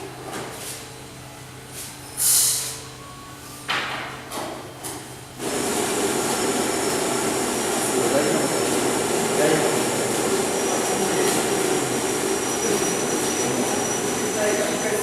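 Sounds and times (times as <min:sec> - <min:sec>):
short loud hiss: 0:02.2 - 0:02.8.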